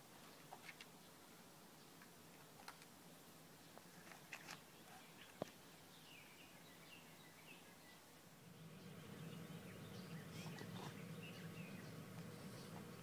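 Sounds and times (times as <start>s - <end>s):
distant birds chirping: 3.6s - 13.0s
low steady hum: 5.0s - 13.0s.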